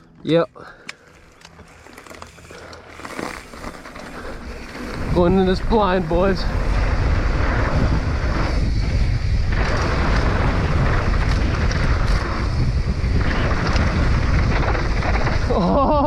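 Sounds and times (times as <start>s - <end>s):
bike rattling and clicking: 0.0s - 16.0s
wind on microphone: 4.1s - 16.0s.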